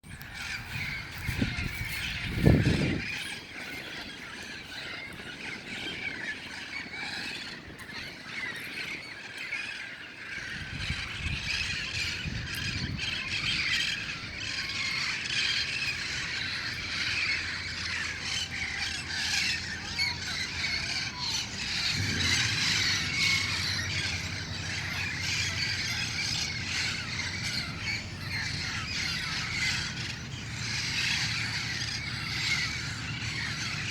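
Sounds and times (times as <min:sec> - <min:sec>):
parrots squawking and screeching: 0:00.2 - 0:33.9
low rumble: 0:20.2 - 0:33.9.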